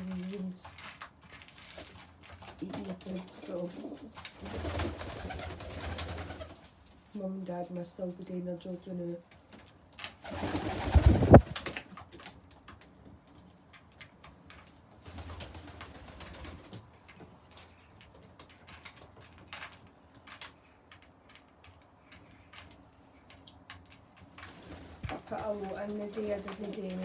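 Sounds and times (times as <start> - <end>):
small clicks and scuffs: 0.0 - 4.4, 16.5 - 27.0
pigeons cooing: 10.3 - 11.6.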